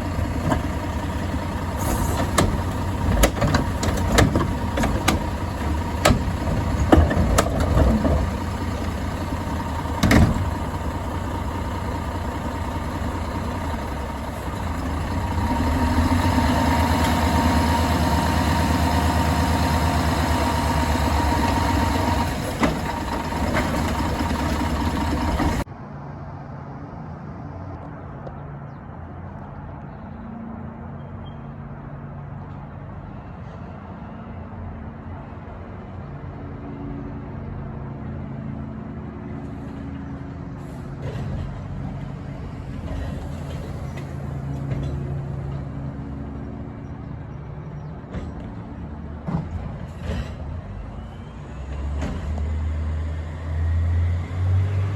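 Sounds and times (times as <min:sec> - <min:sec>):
garbage truck engine whining: 0:00.0 - 0:25.7
low engine hum: 0:00.0 - 0:26.4.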